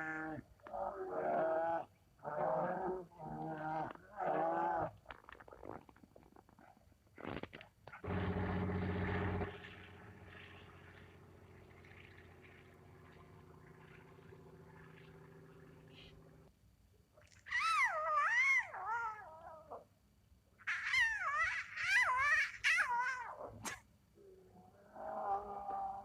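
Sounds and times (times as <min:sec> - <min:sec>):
faint low hum: 0:07.9 - 0:21.4.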